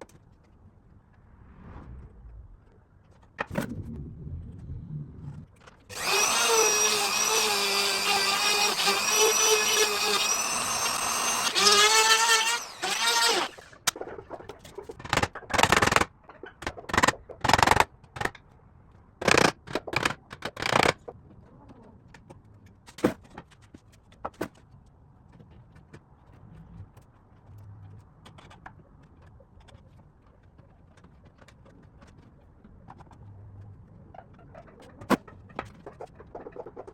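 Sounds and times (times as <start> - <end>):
hand tool working wood: 5.6 - 13.8
power tool motor whining: 5.9 - 13.9.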